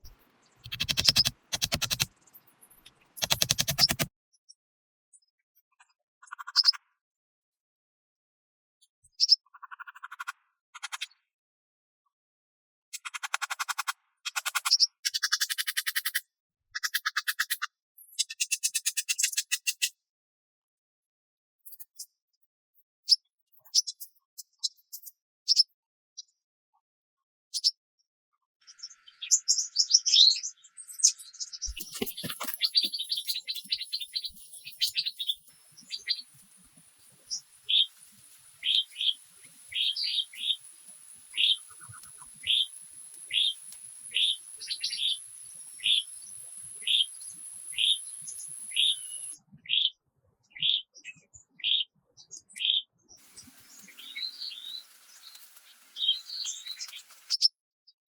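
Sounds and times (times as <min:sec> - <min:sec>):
birds chirping: 0:00.0 - 0:04.1, 0:31.0 - 0:49.4, 0:53.2 - 0:57.4
thin high-pitched whine: 0:31.7 - 0:49.4.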